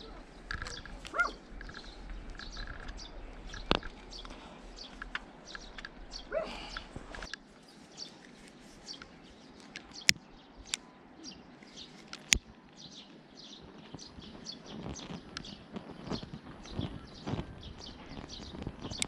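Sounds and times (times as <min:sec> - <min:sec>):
small birds chirping: 0:00.0 - 0:19.0
sharp clicks: 0:00.4 - 0:07.4, 0:08.9 - 0:10.9.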